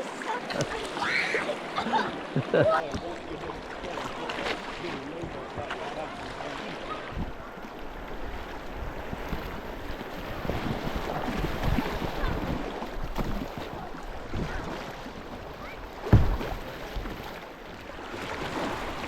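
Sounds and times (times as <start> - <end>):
river water moving: 0.0 - 19.0
wind buffeting microphone: 7.0 - 15.4
sharp thump: 16.0 - 16.6.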